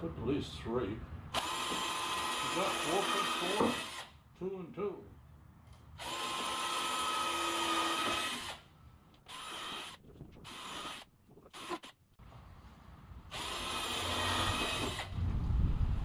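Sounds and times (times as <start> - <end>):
power drill driving screws: 1.3 - 4.2, 6.0 - 12.0, 13.3 - 15.2.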